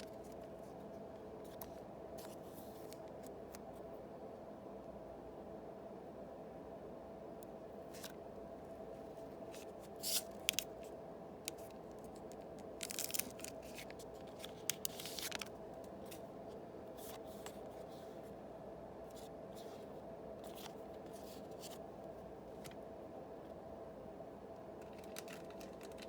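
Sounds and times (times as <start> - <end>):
steady low hum: 0.0 - 26.0
wrapper crinkling and tearing: 12.8 - 15.6.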